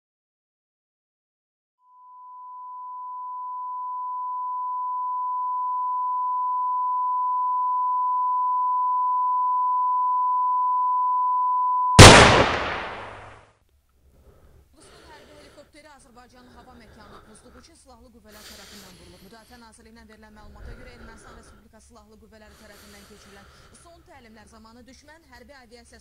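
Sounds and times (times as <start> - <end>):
loud bang: 12.0 - 13.4.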